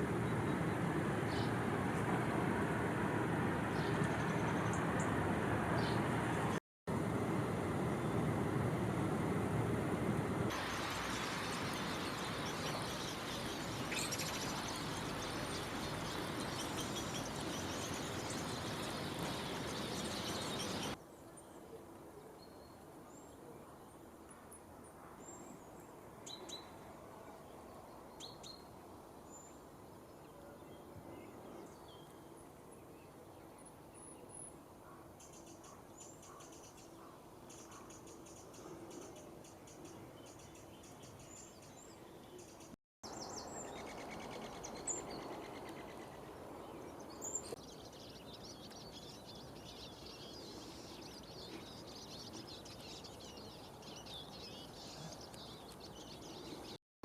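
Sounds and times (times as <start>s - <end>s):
background hiss: 10.5s - 21.0s.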